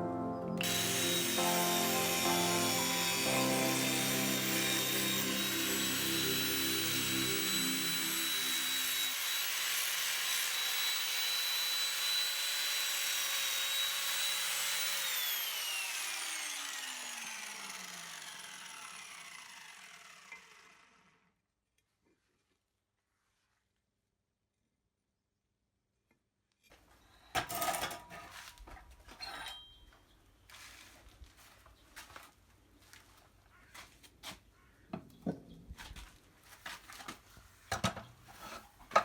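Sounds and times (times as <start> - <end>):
electric power tool whining: 0.5 - 21.2.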